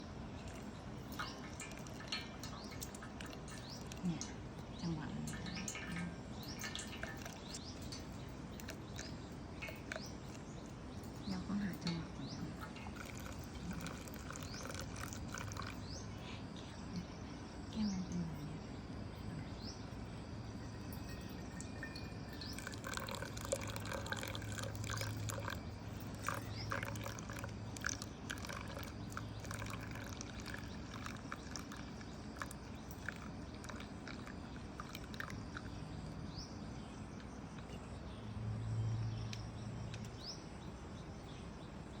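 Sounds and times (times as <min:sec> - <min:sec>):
water dripping through coffee: 0:00.0 - 0:16.2, 0:20.5 - 0:36.2.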